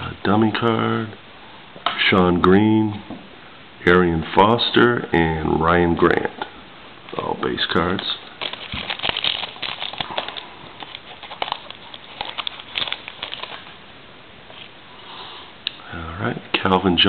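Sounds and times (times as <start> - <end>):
cards being handled: 7.8 - 13.7
wrapper crinkling and tearing: 7.8 - 13.8.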